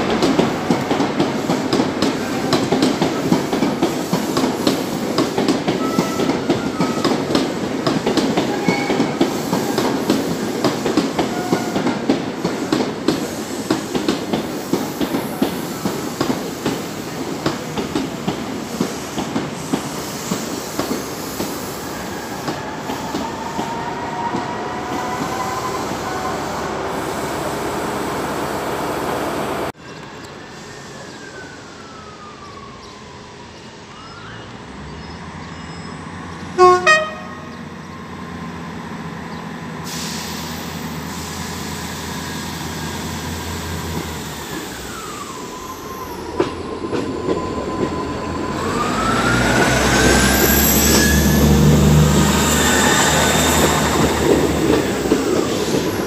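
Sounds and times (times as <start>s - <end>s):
diesel train engines and wheels: 0.0s - 56.0s
diesel train passing: 0.0s - 56.0s
train horn blasts: 5.8s - 7.0s, 11.2s - 12.0s, 36.6s - 37.6s
wheels squealing: 42.0s - 56.0s.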